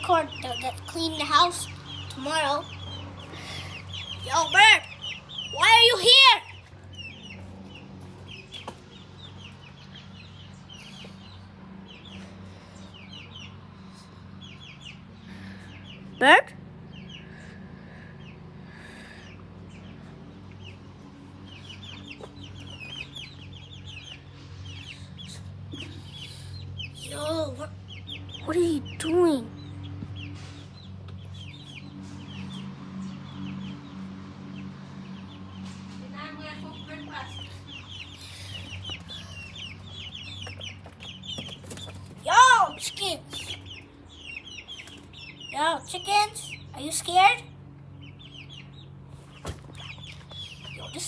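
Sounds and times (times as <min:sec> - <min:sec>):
chickens clucking: 0:36.2 - 0:51.0.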